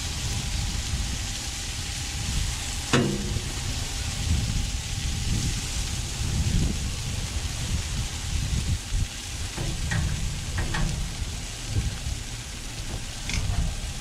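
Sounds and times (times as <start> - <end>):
vegetables sizzling on a griddle: 0.0 - 14.0
spatula striking griddle: 2.9 - 3.8, 9.5 - 13.8.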